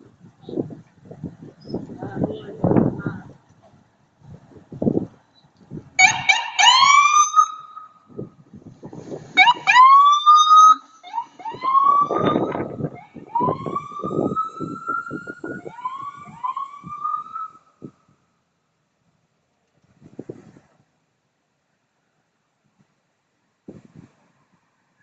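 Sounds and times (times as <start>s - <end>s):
siren whooping: 6.0s - 8.2s, 9.3s - 18.0s.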